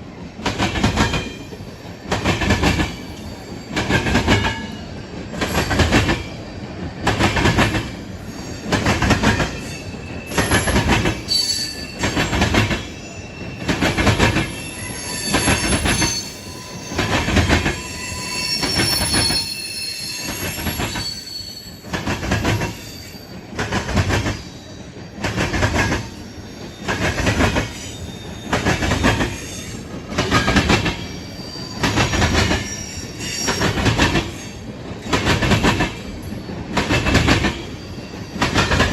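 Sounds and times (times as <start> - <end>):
train wheels clacking over rail joints: 0.4 - 6.4, 7.0 - 8.0, 8.6 - 13.0, 13.6 - 14.6, 16.9 - 17.9, 21.8 - 24.5, 25.1 - 38.9
high wheel squeal: 8.0 - 23.5, 26.0 - 35.2, 36.0 - 38.9.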